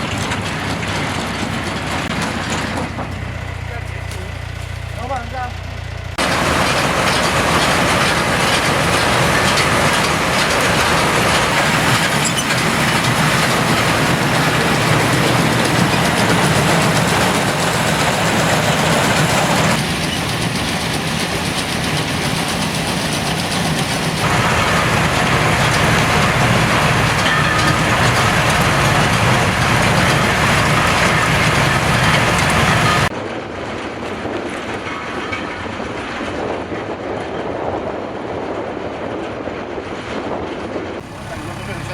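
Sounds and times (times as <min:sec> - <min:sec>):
baler rattling and clattering: 0:00.0 - 0:05.1, 0:06.2 - 0:20.6, 0:23.4 - 0:33.1.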